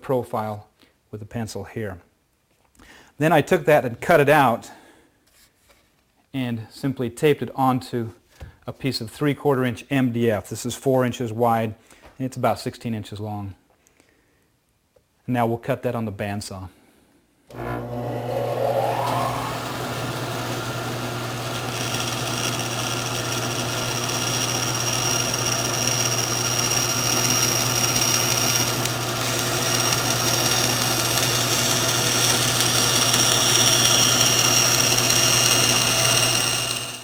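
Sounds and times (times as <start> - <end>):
bandsaw running and cutting: 17.5 - 37.0.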